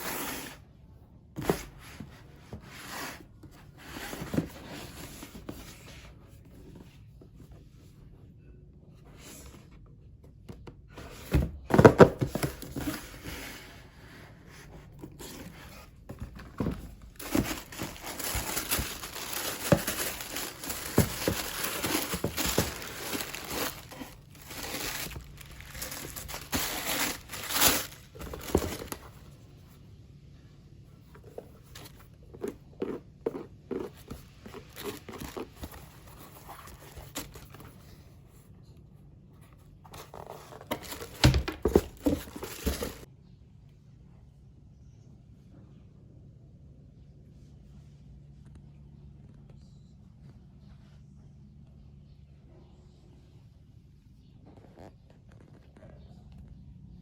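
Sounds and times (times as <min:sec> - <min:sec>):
packaging crinkling and rustling: 0:15.1 - 0:29.2, 0:33.8 - 0:37.7, 0:40.0 - 0:43.1.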